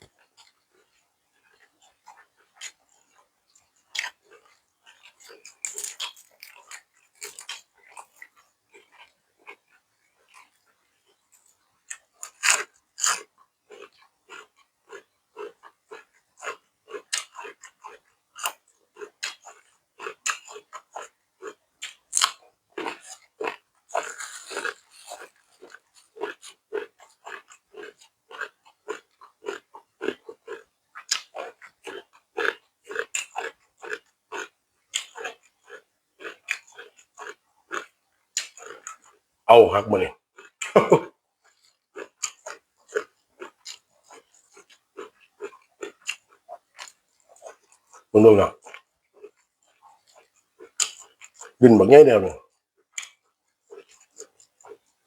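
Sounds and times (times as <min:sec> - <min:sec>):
person chewing crunchy food: 0:00.1 - 0:10.6, 0:11.4 - 0:39.2, 0:40.4 - 0:51.6, 0:52.9 - 0:55.0
short burst of voice: 0:39.5 - 0:40.1, 0:48.2 - 0:48.5, 0:51.6 - 0:52.4.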